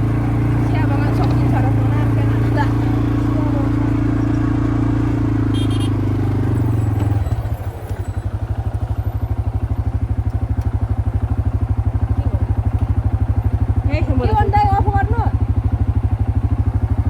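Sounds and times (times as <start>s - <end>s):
quad bike engine idling: 0.0s - 17.0s.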